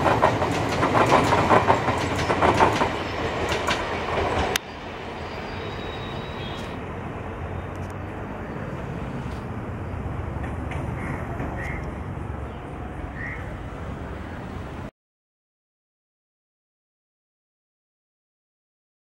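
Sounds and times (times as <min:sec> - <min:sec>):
wheels clattering over rail joints: 0:00.0 - 0:04.6
train rumble: 0:00.0 - 0:14.9.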